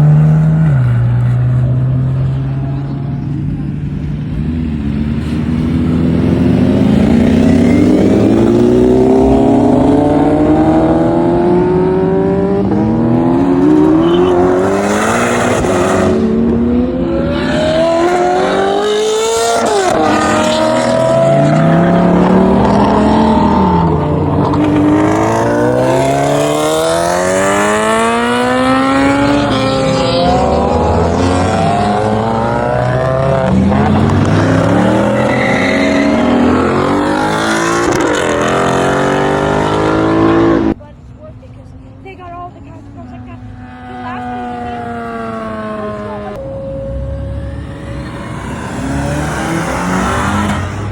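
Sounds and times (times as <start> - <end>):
car engines accelerating hard: 0.0 - 40.8, 42.5 - 50.9.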